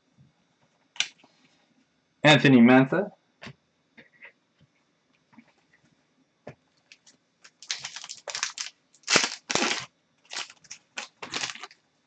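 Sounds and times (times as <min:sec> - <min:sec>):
packaging rustling and crinkling: 0:06.9 - 0:11.8.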